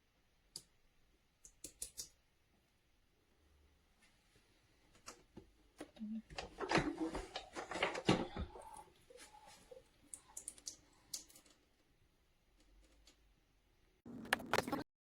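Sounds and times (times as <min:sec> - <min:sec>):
sharp clicks and light knocks: 0:14.1 - 0:14.8.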